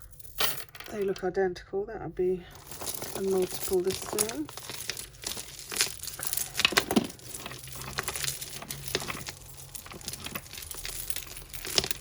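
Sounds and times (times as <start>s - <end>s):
glass bead necklaces clicking: 2.6s - 12.0s
plastic crinkling: 2.6s - 12.0s.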